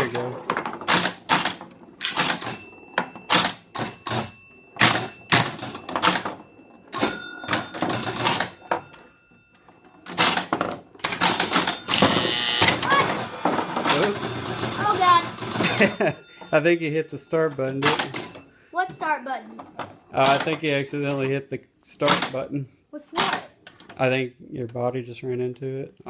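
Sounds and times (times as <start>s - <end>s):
pinball flippers and bumpers clacking: 0.0s - 16.7s, 17.4s - 21.3s, 22.0s - 22.4s
pinball bell ringing: 2.2s - 19.6s.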